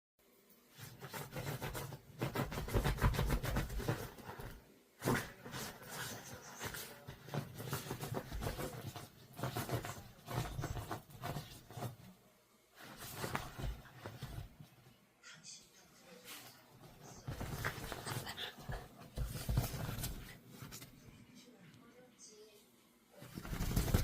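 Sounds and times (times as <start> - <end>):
dog clicks and scuffs: 0.8 - 12.0, 12.8 - 14.7, 16.8 - 20.9, 23.2 - 24.0.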